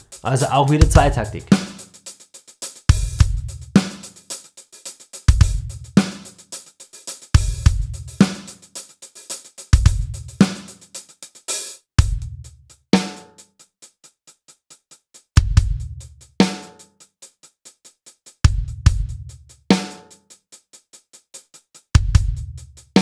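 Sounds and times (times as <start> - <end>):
hi-hat: 0.0 - 11.9, 13.4 - 23.0
snare backbeat: 0.3 - 1.9, 5.4 - 6.3, 7.6 - 8.6.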